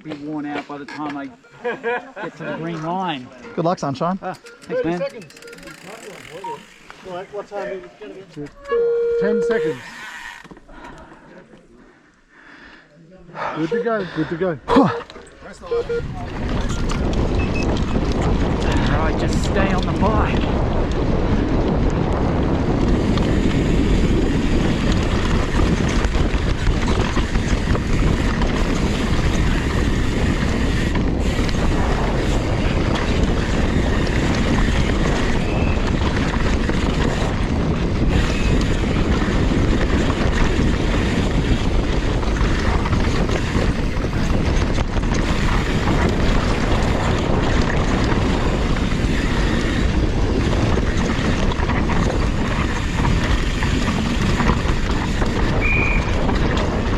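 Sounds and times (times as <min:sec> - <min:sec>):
mountain bike trail noise: 0:00.0 - 0:56.9
wind rushing over microphone: 0:15.5 - 0:56.9.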